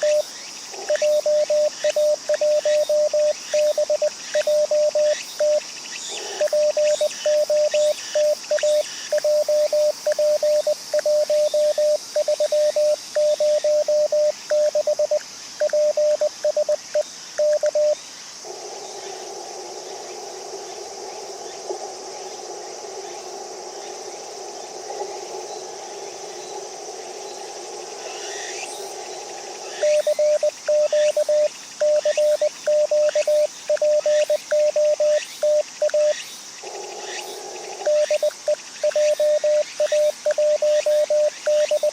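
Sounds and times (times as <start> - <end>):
morse code tone: 6.4 - 16.8, 37.9 - 41.9.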